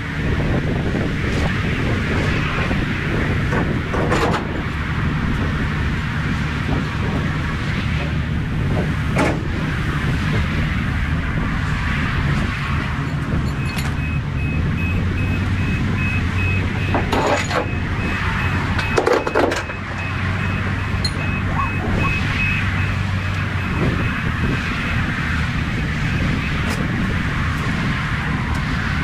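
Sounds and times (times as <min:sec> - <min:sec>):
road and wind noise: 0:00.0 - 0:29.0
truck engine drone: 0:00.0 - 0:29.0
faint high beep: 0:18.4 - 0:24.2.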